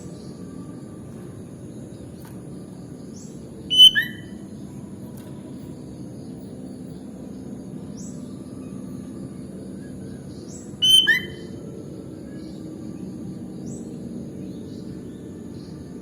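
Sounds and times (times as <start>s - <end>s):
bird call with falling notes: 3.7s - 4.4s, 10.8s - 11.6s
faint high chirps: 3.7s - 4.5s, 10.7s - 11.7s.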